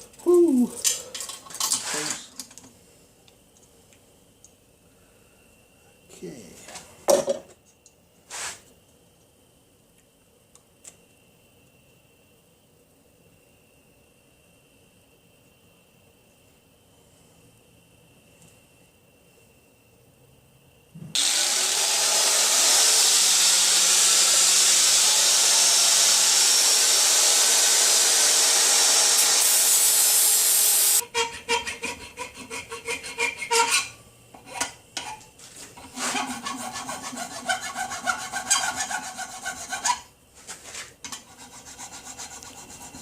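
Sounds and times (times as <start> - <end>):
hand scraping strokes: 8.3 - 8.7, 35.4 - 43.0
power tool grinding brass: 21.2 - 31.0.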